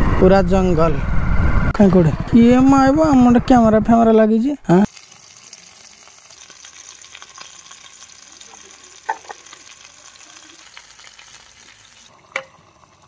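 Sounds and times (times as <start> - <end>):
food sizzling in a pan: 4.9 - 13.0.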